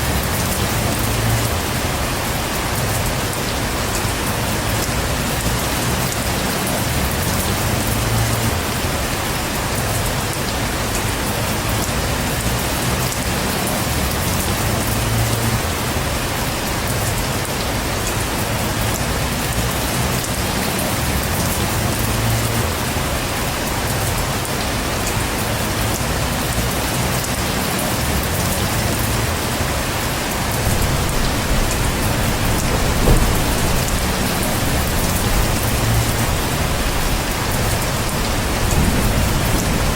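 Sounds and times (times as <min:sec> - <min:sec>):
heavy rain falling: 0:00.0 - 0:39.9
low rumbling: 0:30.5 - 0:39.9.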